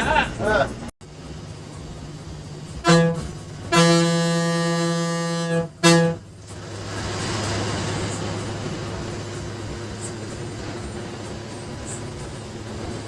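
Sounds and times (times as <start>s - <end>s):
bus engine running: 0.0s - 13.0s
bus horn blasts: 2.6s - 6.4s.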